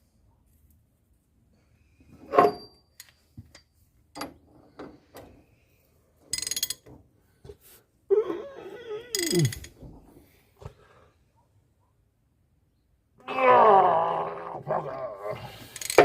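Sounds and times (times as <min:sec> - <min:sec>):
ratchet clicks: 0:06.3 - 0:06.8, 0:09.2 - 0:09.7, 0:15.8 - 0:16.0.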